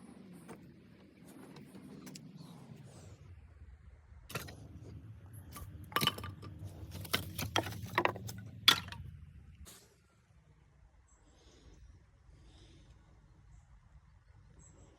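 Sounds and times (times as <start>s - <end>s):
low steady hum: 0.0s - 14.9s
hard objects clinking together: 5.6s - 9.0s.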